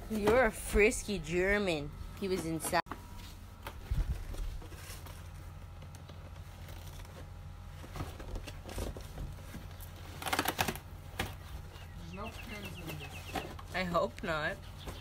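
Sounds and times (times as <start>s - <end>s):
steady low hum: 0.0s - 15.0s
rustling and crinkling: 2.0s - 15.0s.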